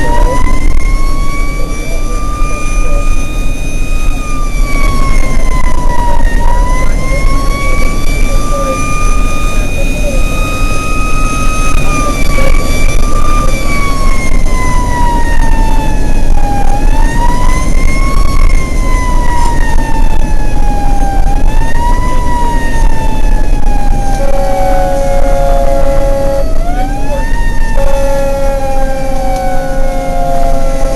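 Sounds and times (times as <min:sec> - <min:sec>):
fire truck siren wailing: 0:00.0 - 0:30.9
road noise: 0:00.0 - 0:30.9
truck engine rumble: 0:00.0 - 0:30.9
steady horn note: 0:24.2 - 0:26.6, 0:27.7 - 0:28.9.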